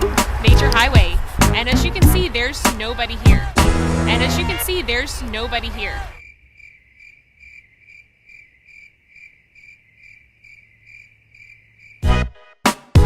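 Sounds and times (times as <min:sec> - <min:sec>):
music and voice: 0:00.4 - 0:06.1
cricket chirping: 0:05.8 - 0:12.1.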